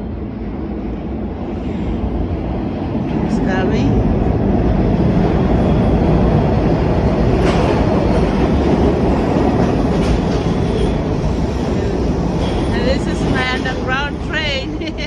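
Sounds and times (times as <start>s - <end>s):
subway train wheels rolling on rails: 0.0s - 15.0s.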